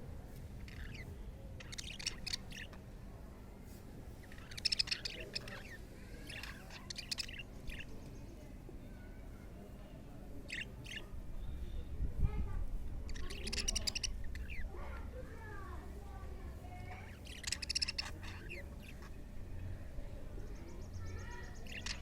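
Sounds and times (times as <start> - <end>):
budgerigars chirping: 0.7 - 1.0, 1.6 - 2.8, 4.2 - 7.9, 10.5 - 11.0, 13.1 - 14.7, 16.9 - 19.2, 21.2 - 22.0.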